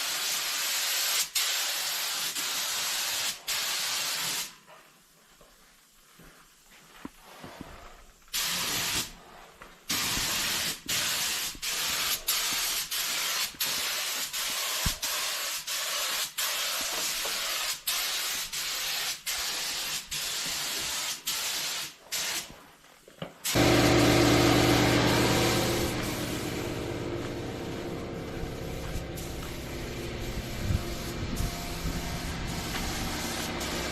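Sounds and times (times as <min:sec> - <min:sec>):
spray gun hissing: 0:00.0 - 0:04.6, 0:08.3 - 0:09.2, 0:09.9 - 0:22.5, 0:23.4 - 0:33.9
low droning machine hum: 0:23.6 - 0:33.9.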